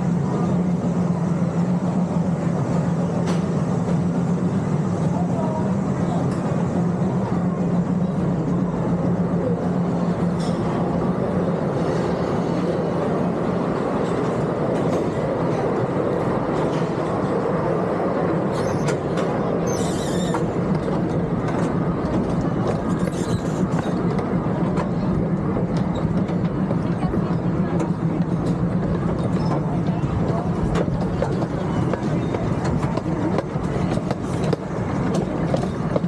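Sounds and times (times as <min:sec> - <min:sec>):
miniature train running on track: 0:00.0 - 0:36.0
wheels rattling and clacking: 0:18.5 - 0:36.0
high squeals: 0:19.6 - 0:20.5.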